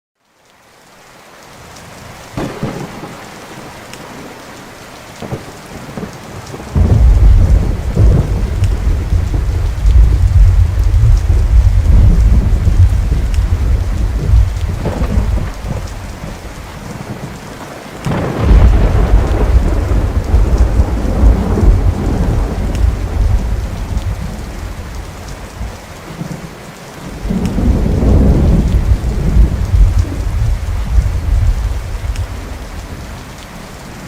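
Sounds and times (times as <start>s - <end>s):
steady rain: 0.2s - 34.0s
rolling thunder: 2.4s - 3.7s, 5.2s - 17.2s, 18.0s - 25.8s, 27.1s - 33.2s.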